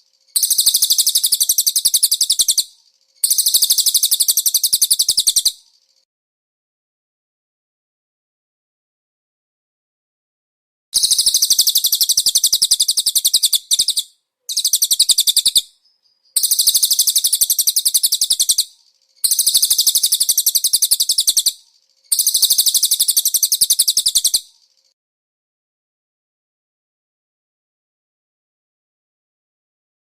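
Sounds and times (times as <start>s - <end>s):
bird singing high-pitched trills: 0.0s - 6.0s, 11.0s - 25.0s.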